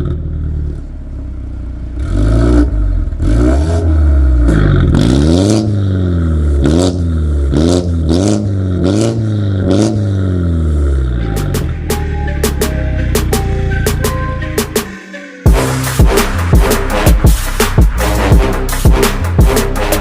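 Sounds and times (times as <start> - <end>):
car engine revving: 0.0 - 20.0
exhaust crack: 15.5 - 20.0.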